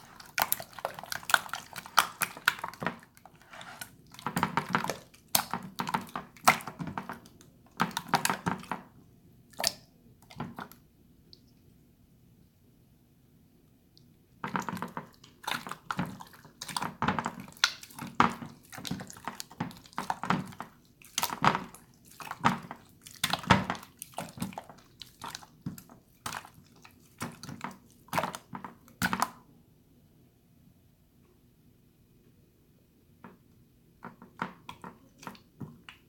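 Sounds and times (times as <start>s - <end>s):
slime squelching by hand: 0.0s - 11.4s, 14.4s - 29.4s.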